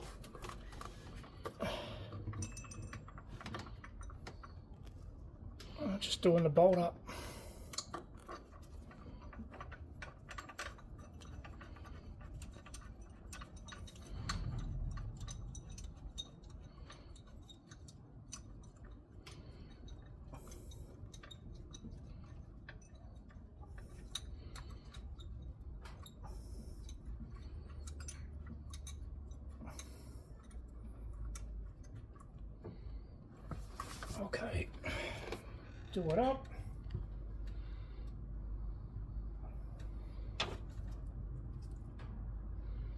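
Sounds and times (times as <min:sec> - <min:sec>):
hand ratchet clicking: 0:07.7 - 0:30.6.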